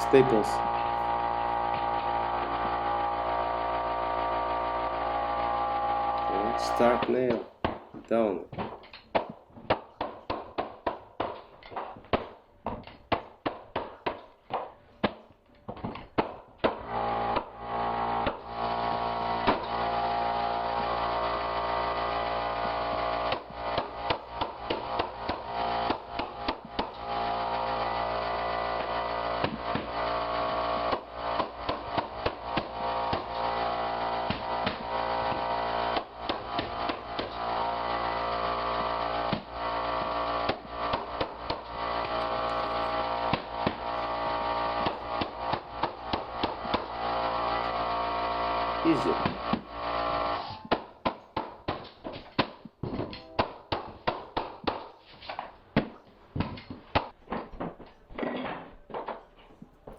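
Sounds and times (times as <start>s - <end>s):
air compressor humming: 0.0s - 8.3s, 16.7s - 50.7s
mallet striking flooring stapler: 7.0s - 20.0s, 22.6s - 27.4s, 28.2s - 47.9s, 49.0s - 57.4s.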